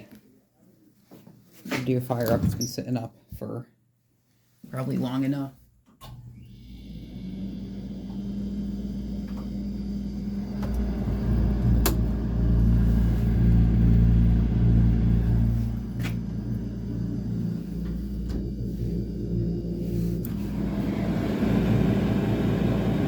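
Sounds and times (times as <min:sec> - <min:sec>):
refrigerator compressor humming: 0:06.3 - 0:23.0.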